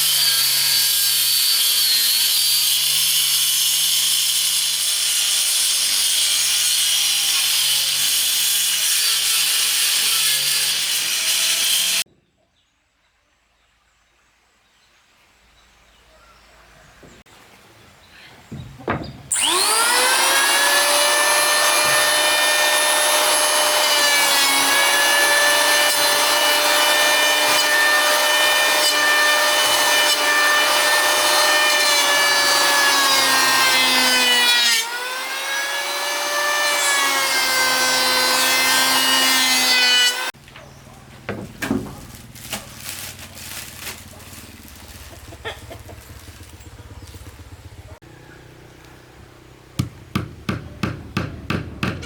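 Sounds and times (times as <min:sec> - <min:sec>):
electric power saw cutting wood: 0:00.0 - 0:12.0, 0:19.3 - 0:40.4, 0:49.8 - 0:52.0.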